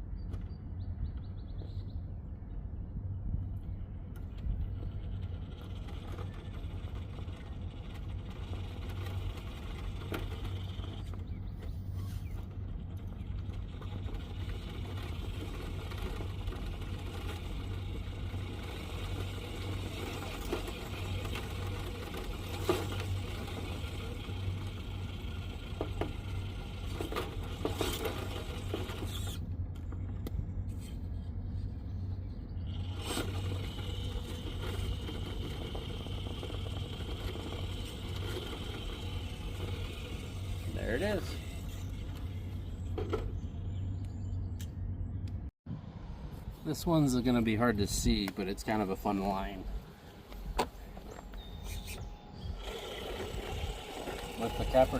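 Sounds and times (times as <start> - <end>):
small electric motor whirring: 11.8 - 29.5, 32.7 - 43.4, 51.6 - 54.9.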